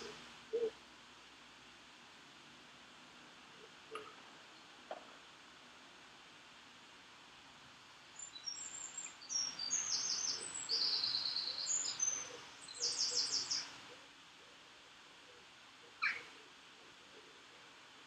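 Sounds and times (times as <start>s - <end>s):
songbird chirps and trills: 8.1s - 14.2s, 15.4s - 16.6s.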